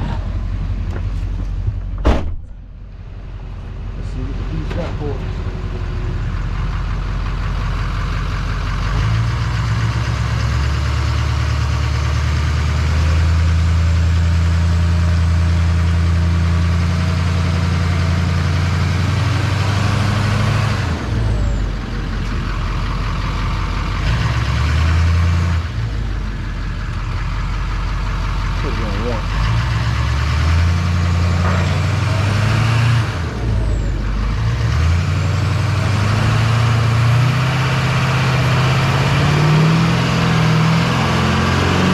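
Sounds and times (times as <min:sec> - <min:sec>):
truck engine revving: 0:00.0 - 0:01.8, 0:02.5 - 0:41.9.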